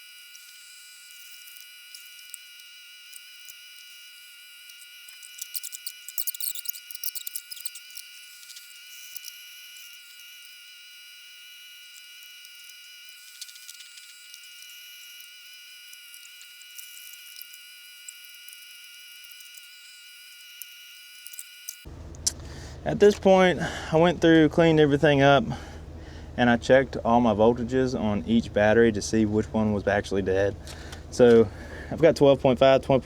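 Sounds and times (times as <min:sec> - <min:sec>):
insects trilling: 0:00.0 - 0:21.9
rapid insect chirps: 0:00.0 - 0:21.9.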